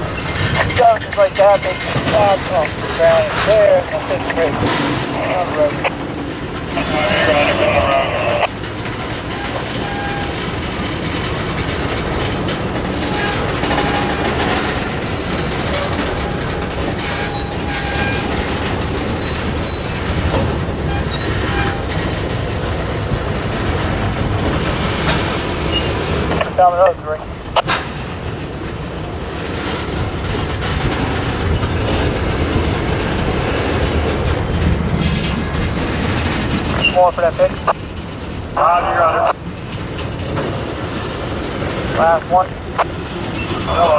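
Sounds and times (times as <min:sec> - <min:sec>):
freight cars rumbling on rails: 0:00.0 - 0:43.9
faint wheel squeals: 0:13.0 - 0:21.9, 0:25.7 - 0:26.0.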